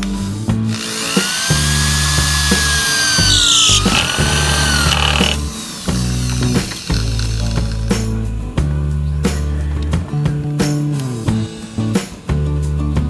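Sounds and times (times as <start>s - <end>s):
power tool whining: 0.0s - 7.9s
background music with a beat: 0.0s - 13.0s.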